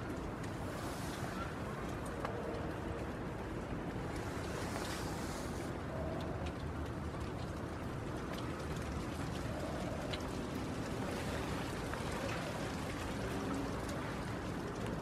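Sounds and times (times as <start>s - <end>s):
rain on a shelter roof: 0.0s - 15.0s.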